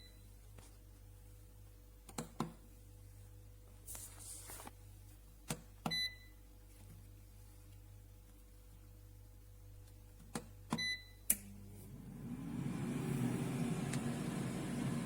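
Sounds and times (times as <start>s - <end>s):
air fryer short high beep: 5.9s - 6.3s, 10.8s - 11.3s.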